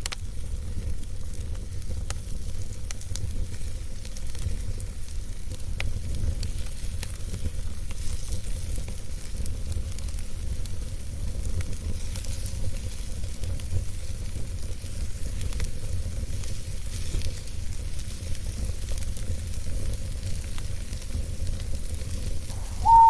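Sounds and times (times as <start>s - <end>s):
fire pops and snaps: 0.0s - 22.8s
campfire crackling: 0.0s - 23.0s
low rumble: 22.5s - 23.0s.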